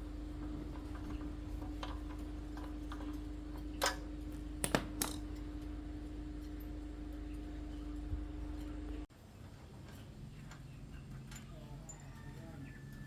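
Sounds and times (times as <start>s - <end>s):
steady hum: 0.0s - 9.1s.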